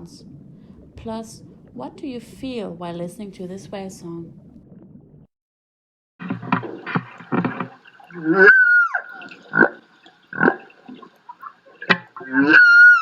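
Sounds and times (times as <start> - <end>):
whale short pulsed calls: 8.2 - 9.7, 12.2 - 13.0
whale high cry swooping down: 8.3 - 9.1, 12.4 - 13.0.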